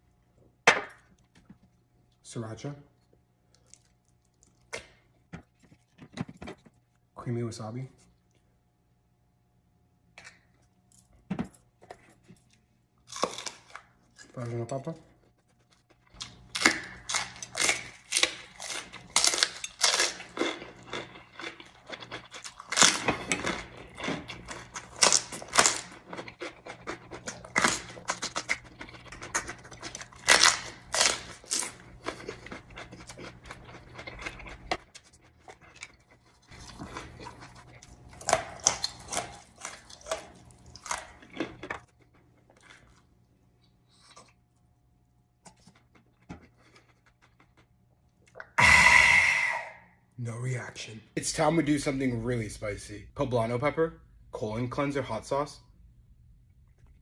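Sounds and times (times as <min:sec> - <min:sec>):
person crunching food: 0:03.4 - 0:07.0, 0:11.8 - 0:44.7, 0:45.4 - 0:49.6.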